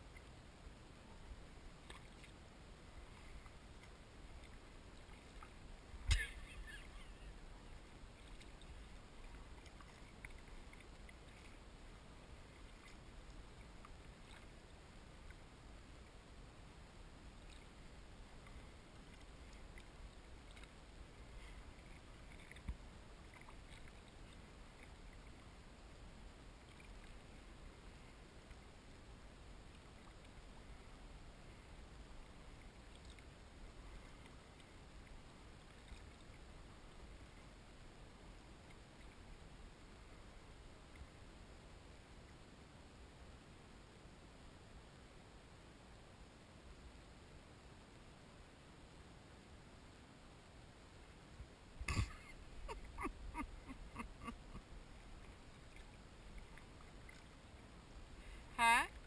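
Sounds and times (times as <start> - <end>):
paddle splashes and drips: 1.1 - 16.1, 17.3 - 28.6, 31.7 - 37.6, 51.8 - 59.0.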